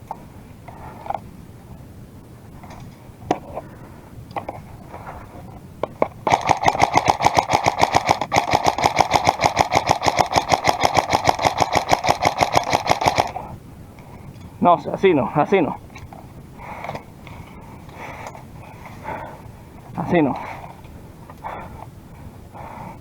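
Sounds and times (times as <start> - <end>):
airsoft gun full-auto firing: 6.2 - 13.4.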